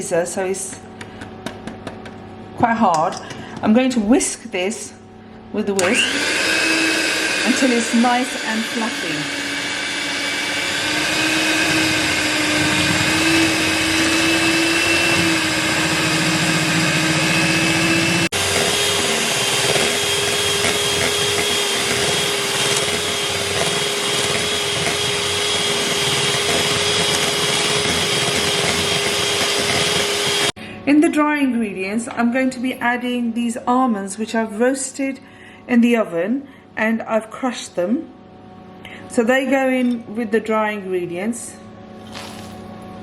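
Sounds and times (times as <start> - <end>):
electric hand whisk running: 5.8 - 30.6, 42.0 - 42.7.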